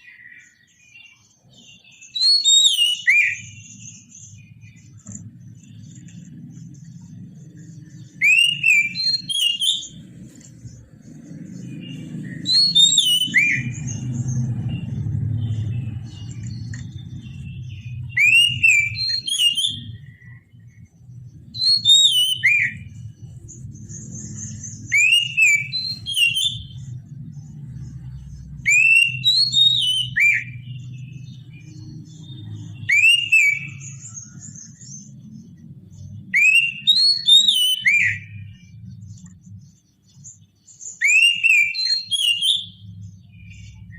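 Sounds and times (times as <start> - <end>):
bird singing whistled phrases: 1.5 - 4.8, 8.1 - 10.0, 12.0 - 14.1, 17.4 - 20.5, 21.6 - 23.1, 23.9 - 26.9, 28.6 - 31.4, 32.7 - 34.8, 36.2 - 38.7, 40.8 - 43.7
steady low hum: 3.4 - 29.3.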